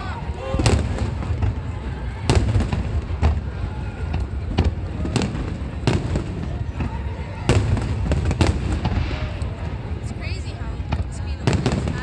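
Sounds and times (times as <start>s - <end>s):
firework bangs: 0.0s - 12.0s.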